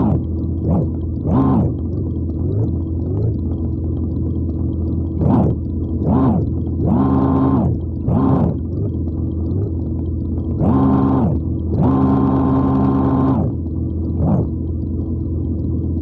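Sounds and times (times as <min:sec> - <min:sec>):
toy vehicle engine sound effect: 0:00.0 - 0:03.4, 0:05.2 - 0:08.9, 0:10.6 - 0:14.6.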